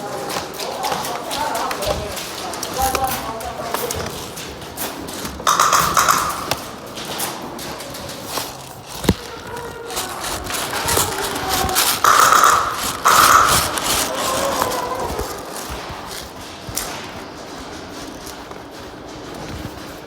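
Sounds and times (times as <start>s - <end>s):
clicks and knocks: 0.0s - 20.0s
airsoft guns firing bursts: 5.0s - 7.2s, 9.8s - 16.9s.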